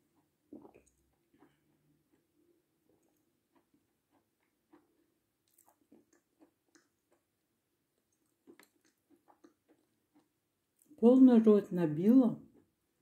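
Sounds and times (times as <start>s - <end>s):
chewing crunchy meringue: 0.0s - 11.0s.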